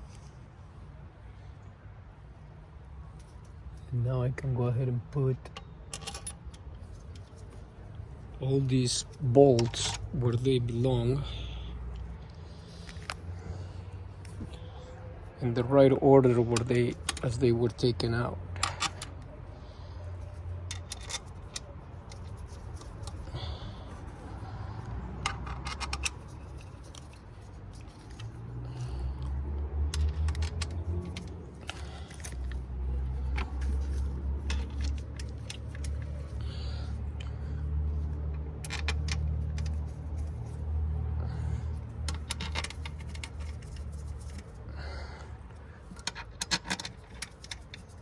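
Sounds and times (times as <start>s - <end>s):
metal bolts clinking: 5.4s - 7.4s, 8.8s - 10.5s, 16.2s - 19.3s, 20.6s - 23.3s, 25.2s - 28.4s, 29.9s - 32.6s, 38.6s - 39.9s, 42.0s - 44.5s, 45.8s - 48.0s.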